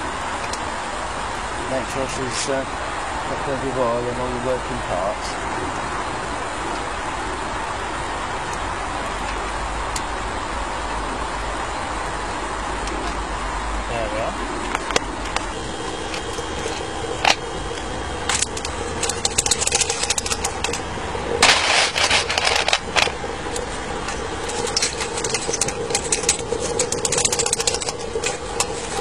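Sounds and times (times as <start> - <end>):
electric fan humming: 0.0 - 29.0
metallic clicks and clatters: 18.2 - 29.0.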